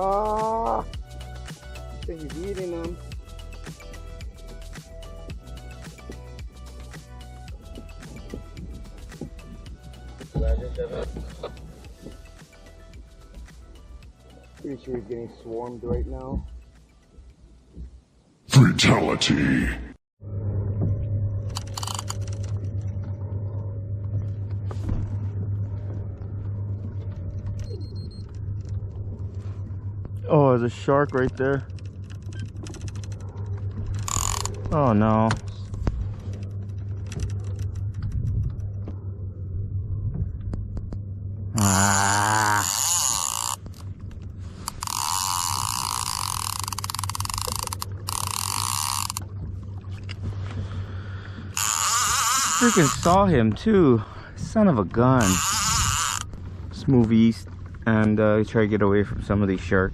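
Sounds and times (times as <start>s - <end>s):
low steady rumble: 0.0s - 18.2s, 20.2s - 59.9s
low steady hum: 20.2s - 59.9s
fishing reel whirring and clicking: 21.5s - 22.9s, 30.9s - 34.8s, 36.2s - 38.6s, 41.6s - 44.0s, 44.6s - 49.3s, 51.5s - 53.3s, 55.1s - 56.4s.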